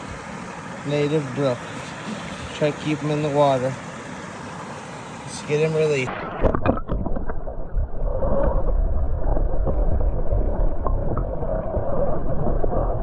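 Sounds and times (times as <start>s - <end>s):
muffled underwater stream rushing: 0.0s - 13.0s.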